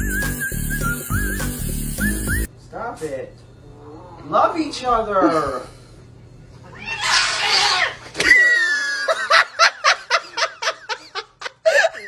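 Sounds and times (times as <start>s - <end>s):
short hissing noise: 0.0s - 2.5s
person laughing: 8.3s - 12.0s.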